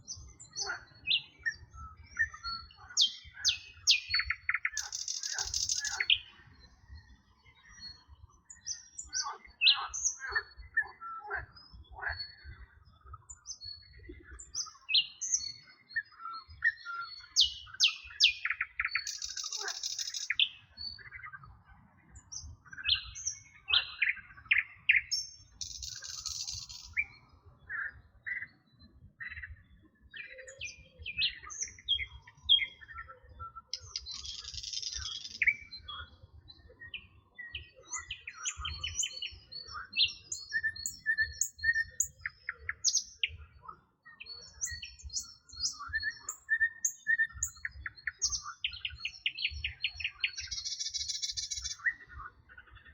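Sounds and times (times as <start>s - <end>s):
birds chirping and whistling: 0.1s - 6.3s, 16.7s - 21.0s, 22.8s - 27.3s, 30.1s - 43.4s, 44.1s - 52.1s.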